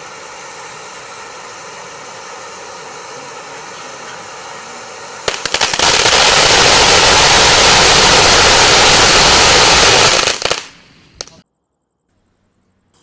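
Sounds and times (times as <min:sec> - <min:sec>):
firework fountain crackling: 0:00.0 - 0:11.4
firework pops: 0:05.3 - 0:11.4.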